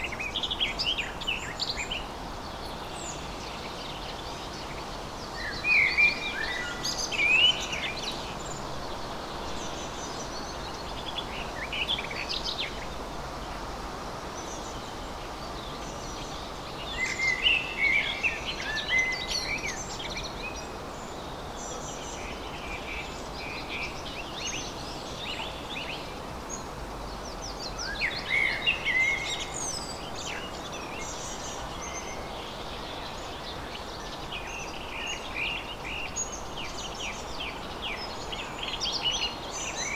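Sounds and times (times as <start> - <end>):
songbirds chirping: 0.0 - 39.9
steady background hiss: 0.0 - 39.9.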